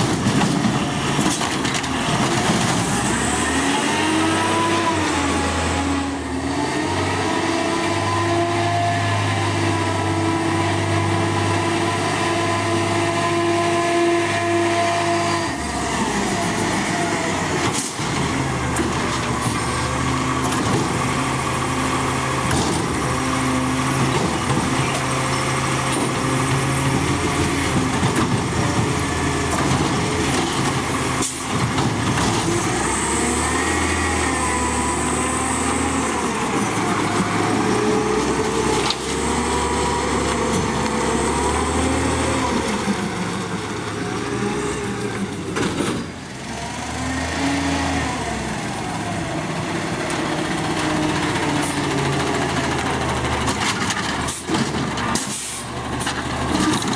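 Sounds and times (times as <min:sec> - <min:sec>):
garbage truck diesel engine: 0:00.0 - 0:56.9.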